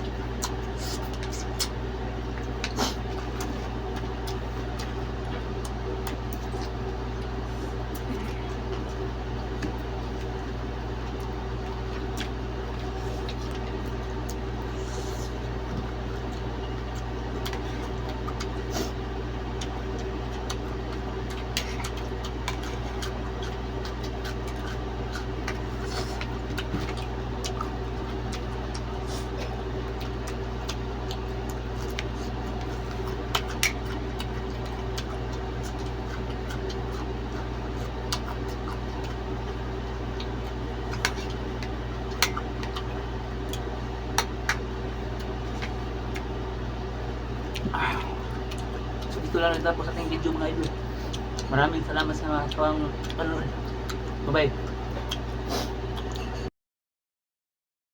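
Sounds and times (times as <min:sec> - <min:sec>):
steady mechanical hum: 0:00.0 - 0:56.5
eating clicks and taps: 0:48.5 - 0:54.0.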